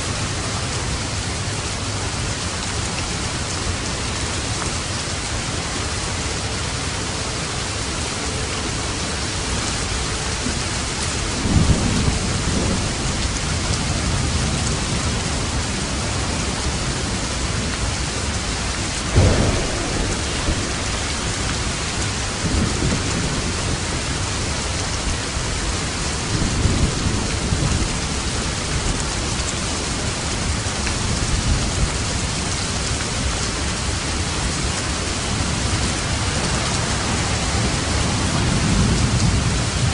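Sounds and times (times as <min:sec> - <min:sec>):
heavy rain hissing: 0:00.0 - 0:39.9
thunder rumbling: 0:11.3 - 0:29.1.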